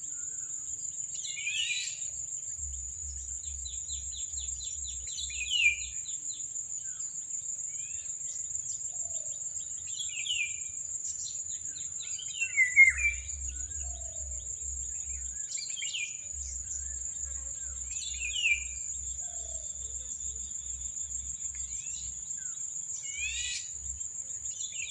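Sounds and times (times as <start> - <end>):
high-pitched insect trill: 0.0 - 24.9.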